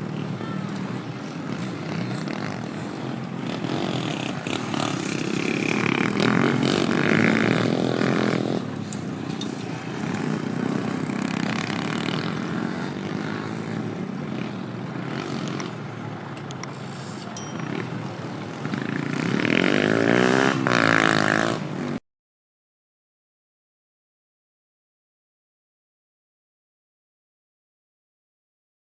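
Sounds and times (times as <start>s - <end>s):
dirt bike engines running: 0.0s - 22.0s.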